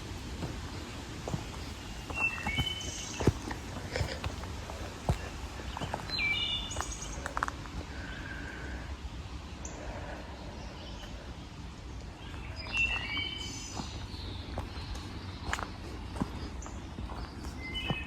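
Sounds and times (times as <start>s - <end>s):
footsteps on trail: 0.0s - 8.0s, 12.3s - 18.0s
songbirds whistling: 0.0s - 8.8s, 12.2s - 18.0s.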